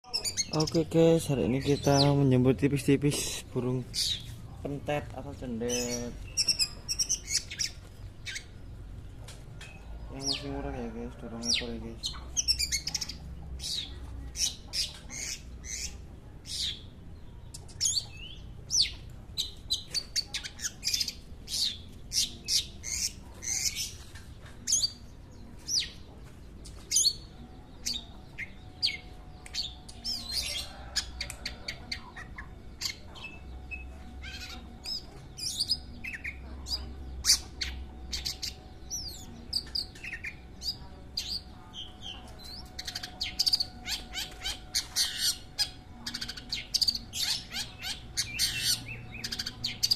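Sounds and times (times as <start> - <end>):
shrike singing: 31.8 - 49.9.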